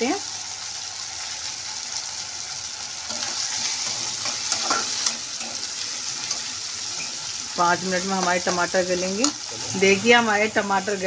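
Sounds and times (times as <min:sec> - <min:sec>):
vegetables sizzling in oil: 0:00.0 - 0:11.0
metal spatula scraping pan: 0:03.1 - 0:07.4.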